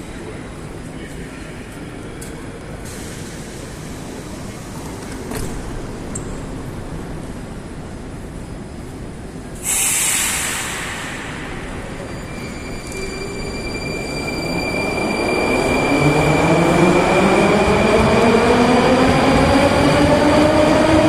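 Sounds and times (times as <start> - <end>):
metro train rumbling: 0.0 - 21.0
hiss of released air: 9.6 - 12.1.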